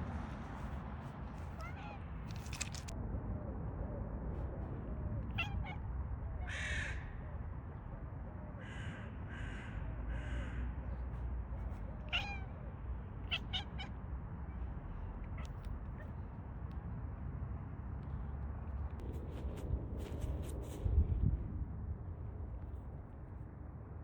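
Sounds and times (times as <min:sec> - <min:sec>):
low outdoor rumble: 0:00.0 - 0:24.0
crow cawing: 0:06.4 - 0:07.2, 0:08.6 - 0:11.0.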